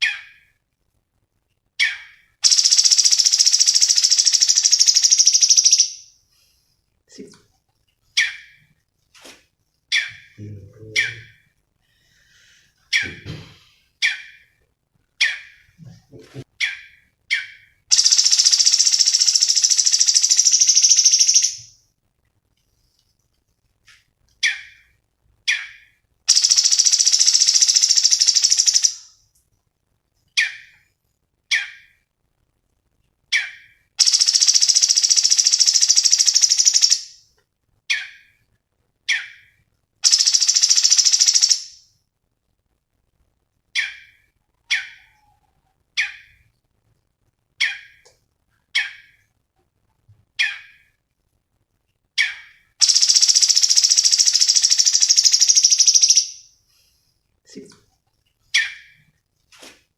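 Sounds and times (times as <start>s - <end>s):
bird song rapid high trills: 2.4s - 6.1s, 17.9s - 21.7s, 26.3s - 29.0s, 34.0s - 37.2s, 40.0s - 41.8s, 52.8s - 56.4s.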